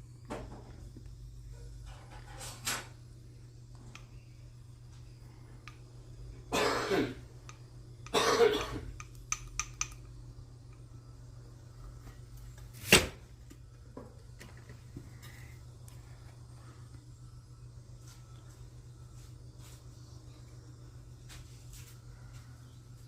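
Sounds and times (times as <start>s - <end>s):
steady low hum: 0.0s - 23.0s
person coughing: 6.5s - 7.2s, 8.1s - 8.9s.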